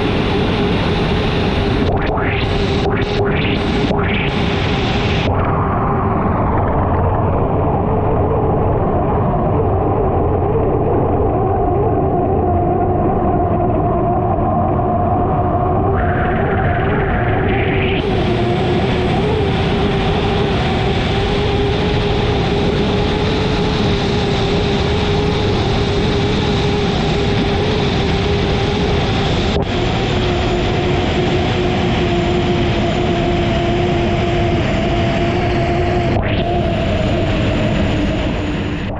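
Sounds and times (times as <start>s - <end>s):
dense rushing noise: 0.0s - 7.8s, 16.0s - 38.9s
turbine engine two-tone whine: 0.0s - 38.9s.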